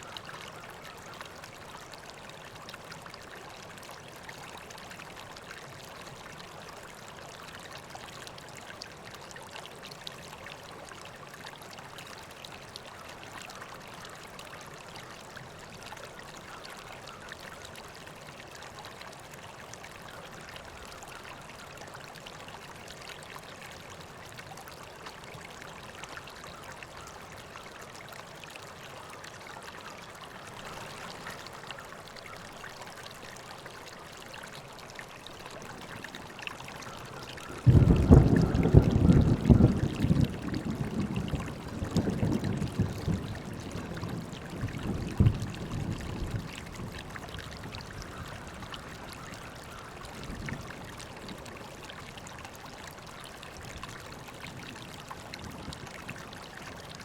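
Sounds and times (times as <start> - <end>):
river flowing over stones: 0.0 - 57.0.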